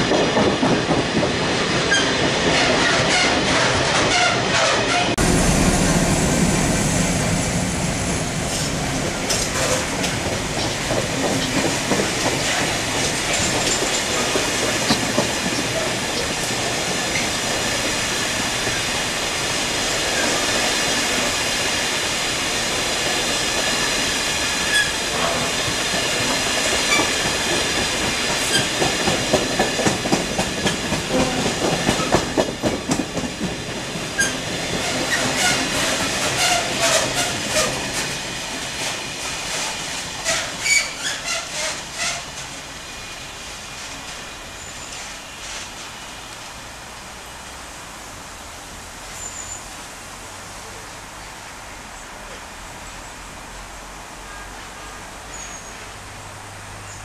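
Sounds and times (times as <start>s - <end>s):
train passing rumble: 0.0s - 49.1s
wheels clacking over rail joints: 8.2s - 19.2s, 22.7s - 42.8s.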